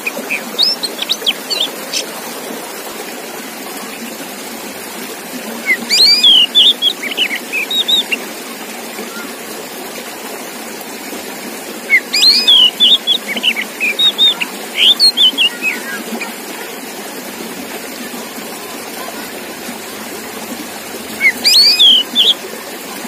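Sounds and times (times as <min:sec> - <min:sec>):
songbird whistling and chirping: 0:00.1 - 0:02.0, 0:05.6 - 0:08.2, 0:11.9 - 0:16.3, 0:21.1 - 0:22.4.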